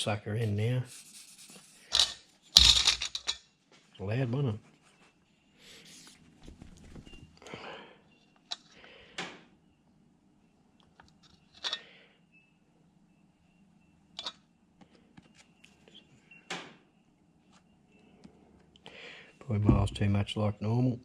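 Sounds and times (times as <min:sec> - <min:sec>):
metal parts clicking and knocking: 0:01.9 - 0:03.4, 0:11.1 - 0:11.8.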